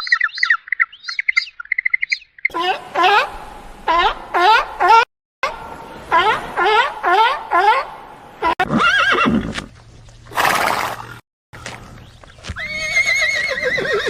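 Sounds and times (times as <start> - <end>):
horse neighing: 8.5 - 9.6, 12.6 - 14.0.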